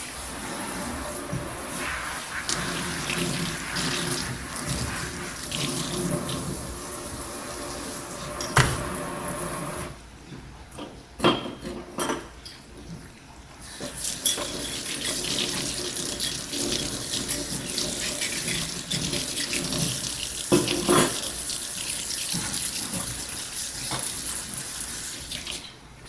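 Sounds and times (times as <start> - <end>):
tap water running into sink: 0.0 - 10.0, 13.7 - 25.7
dishes clinking: 10.8 - 12.6.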